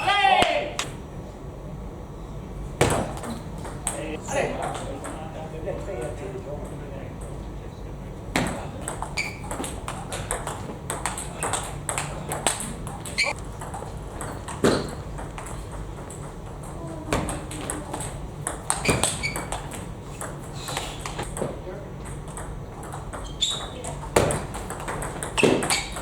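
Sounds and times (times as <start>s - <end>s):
table tennis ball hits: 2.8s - 5.3s, 8.3s - 26.0s.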